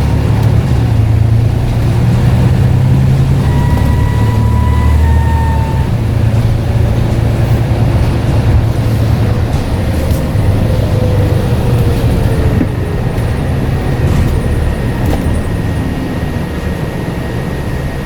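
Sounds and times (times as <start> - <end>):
bus engine rumble: 0.0 - 18.0
faint descending tone: 3.1 - 6.0
thin high whine: 3.1 - 6.4.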